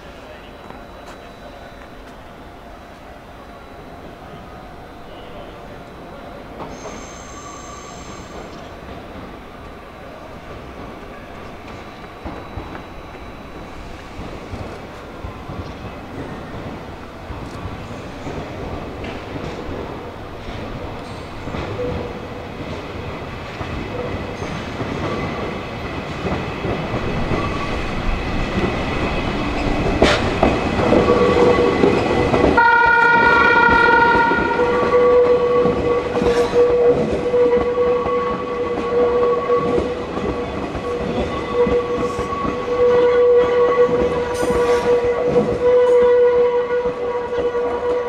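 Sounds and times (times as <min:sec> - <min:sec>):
electric train approaching: 0:00.0 - 0:48.0
steady train whine: 0:00.0 - 0:48.0
train horn blast: 0:32.5 - 0:40.0, 0:40.8 - 0:48.0.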